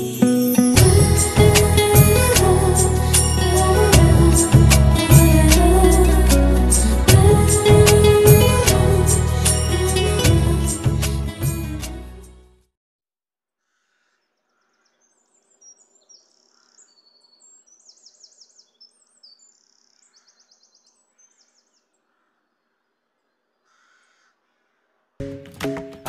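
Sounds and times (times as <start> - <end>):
small birds chirping and trilling: 13.7 - 24.3.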